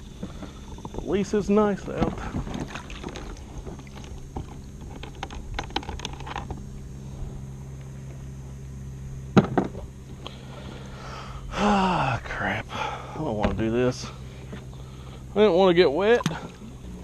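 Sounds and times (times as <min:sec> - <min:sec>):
clicks and knocks on kayak: 0:01.9 - 0:06.6.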